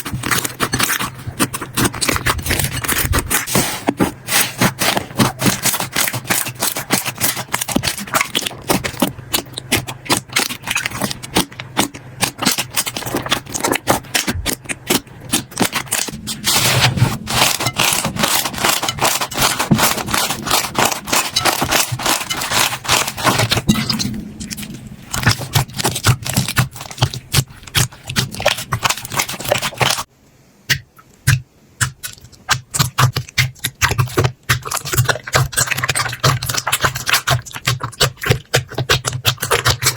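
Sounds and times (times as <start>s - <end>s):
slime crackling and popping: 0.0s - 30.1s.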